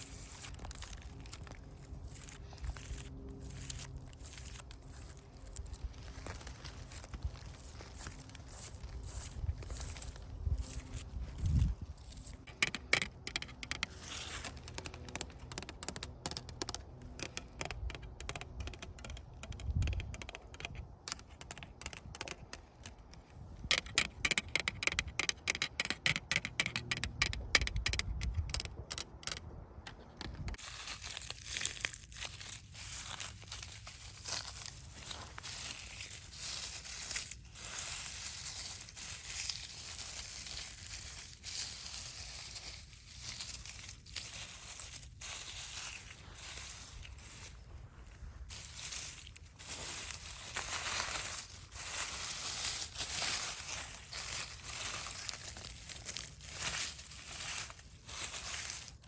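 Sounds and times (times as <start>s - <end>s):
soft hissy scratching: 0.0s - 12.5s, 30.6s - 59.0s
dry leaves and twigs crackling: 0.0s - 26.2s, 27.6s - 59.0s.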